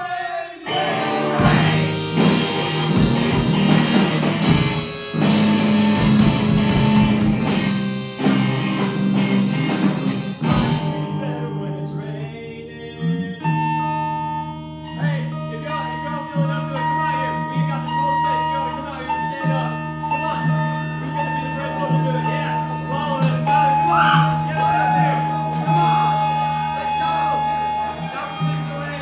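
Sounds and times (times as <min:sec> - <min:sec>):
guitar playing: 0:00.6 - 0:29.0
live band playing: 0:00.7 - 0:11.6, 0:20.9 - 0:29.0.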